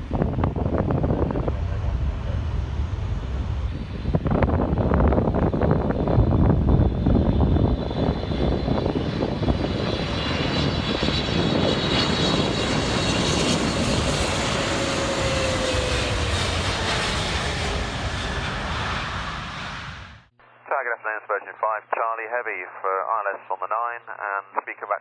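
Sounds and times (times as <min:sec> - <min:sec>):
jet airliner engine rush: 0:00.0 - 0:20.3
jet engine whine: 0:00.0 - 0:20.7.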